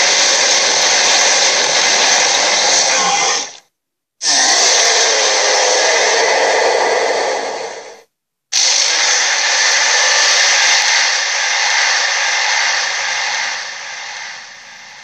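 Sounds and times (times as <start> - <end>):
rushing hiss: 0.0 - 3.6, 4.2 - 15.0.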